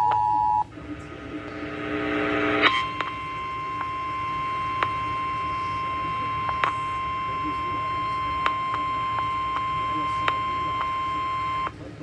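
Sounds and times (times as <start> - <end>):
rising noise: 0.0 - 7.8
two-note attention signal: 0.0 - 11.6.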